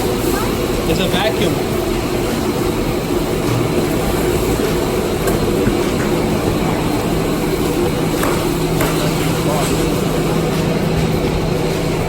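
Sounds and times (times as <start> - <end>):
vacuum cleaner rushing: 0.0 - 12.0.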